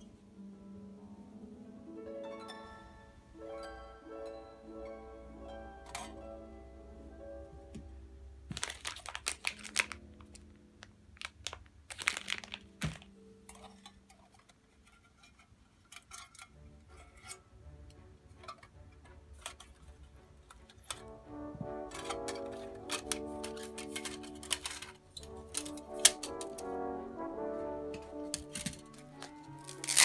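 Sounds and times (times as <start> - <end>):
metal cookware clinking: 21.8 - 26.7.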